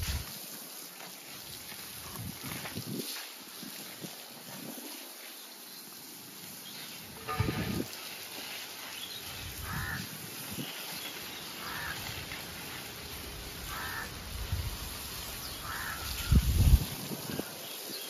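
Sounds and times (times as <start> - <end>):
garden hose spraying water: 0.0 - 18.0
bird calling: 8.9 - 12.8, 13.6 - 14.2, 15.4 - 16.4.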